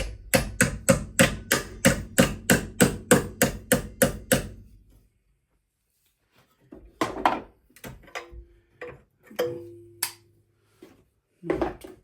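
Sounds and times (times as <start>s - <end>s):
hammer striking steel: 0.0s - 4.7s.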